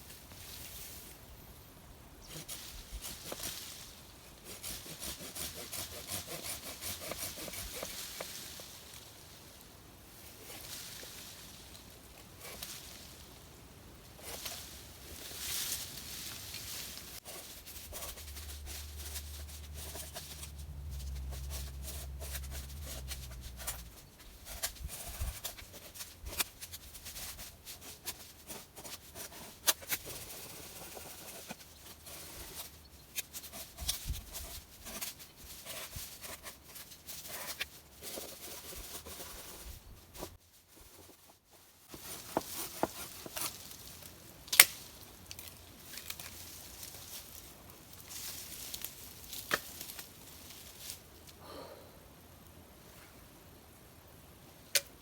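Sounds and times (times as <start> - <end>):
sticks cracking and knocking: 44.4 - 47.3, 48.4 - 50.2, 54.7 - 55.0.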